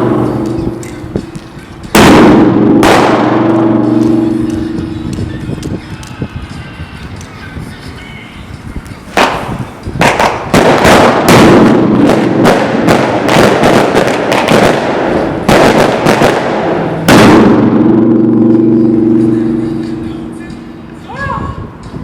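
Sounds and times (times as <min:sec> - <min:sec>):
steady low tone: 0:00.0 - 0:05.6, 0:17.5 - 0:21.0
firecracker bangs: 0:00.0 - 0:05.7, 0:09.1 - 0:20.8.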